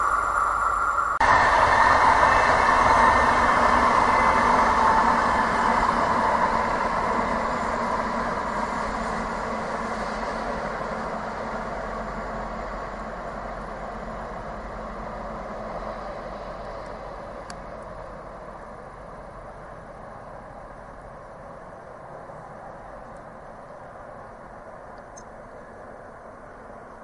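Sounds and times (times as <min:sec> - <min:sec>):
train wheels rushing on rail: 0:00.0 - 0:27.0.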